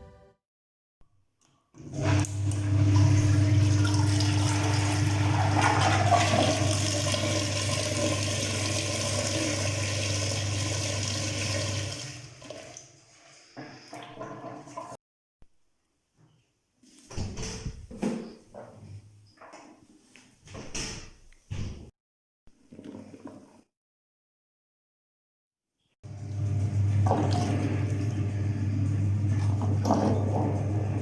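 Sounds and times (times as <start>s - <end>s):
washing machine motor hum: 1.8s - 15.0s, 26.0s - 31.0s
water and laundry sloshing: 1.8s - 15.0s, 16.8s - 21.8s, 22.6s - 23.7s, 26.1s - 31.0s.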